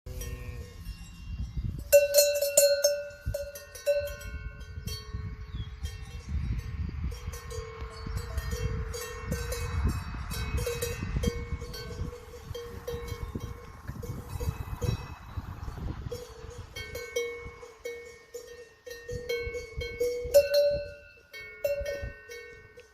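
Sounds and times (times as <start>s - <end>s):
cowbells clanking: 0.1s - 22.9s
low rumble: 5.2s - 18.2s.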